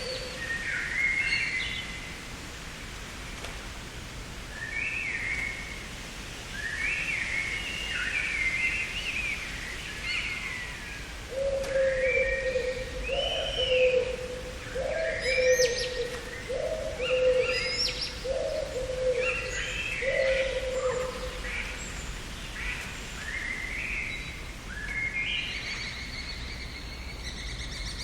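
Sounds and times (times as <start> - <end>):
low cooing call: 0.0 - 0.4, 11.3 - 21.8
songbirds chirping: 0.0 - 3.2, 3.9 - 28.0.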